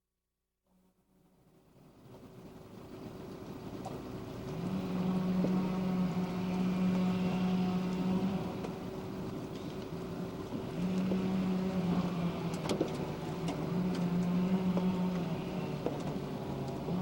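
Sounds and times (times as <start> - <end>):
low hum: 0.7 - 17.0
motor running: 3.6 - 17.0.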